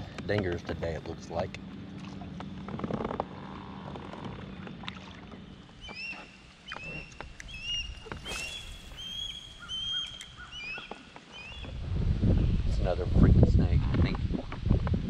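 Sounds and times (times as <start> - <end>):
bird chirping: 5.7 - 11.8
water splash: 7.9 - 10.4.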